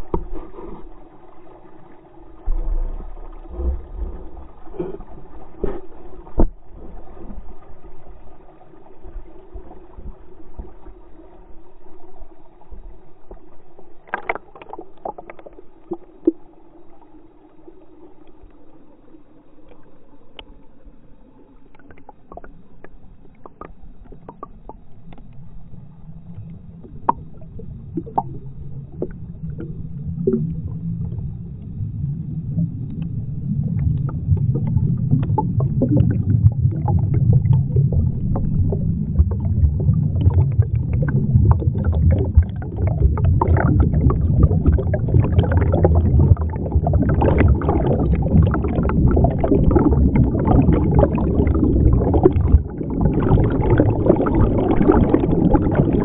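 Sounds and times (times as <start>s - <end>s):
underwater gurgling rumble: 0.0s - 56.0s
bubbles popping and clicking: 26.8s - 31.2s, 32.8s - 56.0s.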